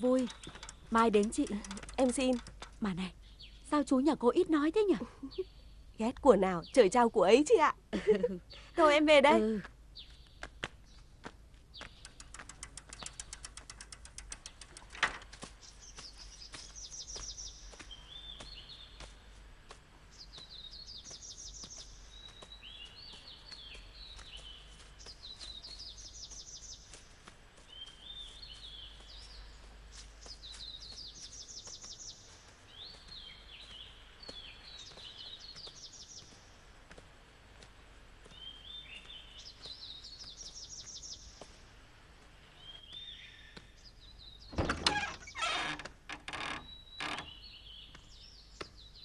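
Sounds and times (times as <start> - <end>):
outdoor background noise: 0.0 - 49.0
songbird singing: 0.0 - 49.0
fast run of ticks: 0.3 - 2.8, 11.8 - 15.5
sharp click: 12.0 - 15.2.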